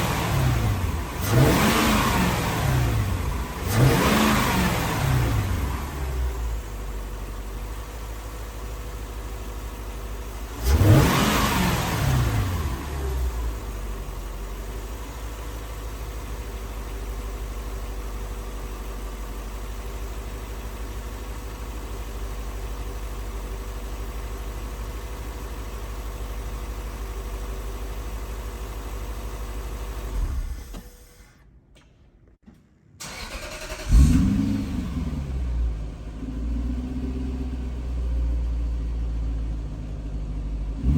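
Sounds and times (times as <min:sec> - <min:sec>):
engine revving: 0:00.0 - 0:06.5, 0:10.5 - 0:13.7, 0:33.0 - 0:37.8
car engine idling: 0:00.0 - 0:30.7, 0:33.0 - 0:40.9.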